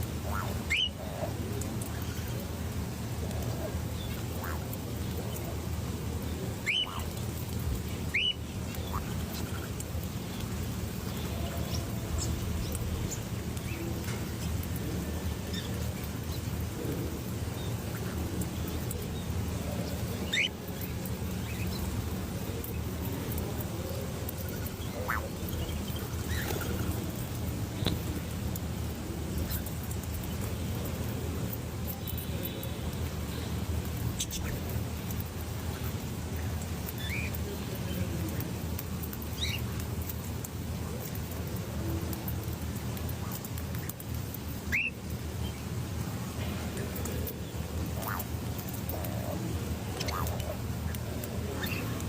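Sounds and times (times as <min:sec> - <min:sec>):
birds calling: 0:00.2 - 0:02.4, 0:06.6 - 0:07.2, 0:07.8 - 0:16.8, 0:17.4 - 0:28.1, 0:47.1 - 0:52.0.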